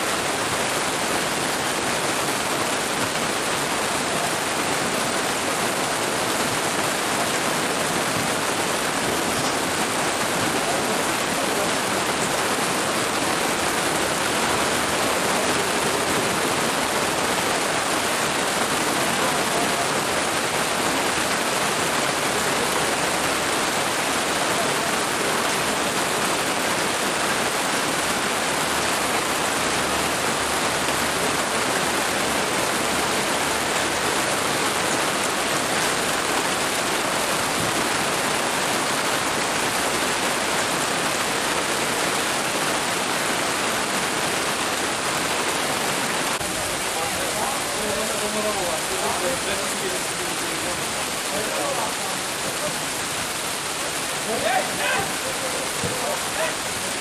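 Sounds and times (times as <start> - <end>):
heavy rain hiss: 0.0 - 57.0.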